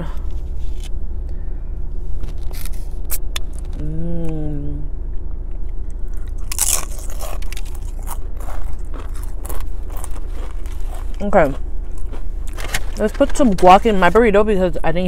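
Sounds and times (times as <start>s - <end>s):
person humming mmm: 3.7s - 4.9s
crunching and chewing chip: 5.6s - 13.9s.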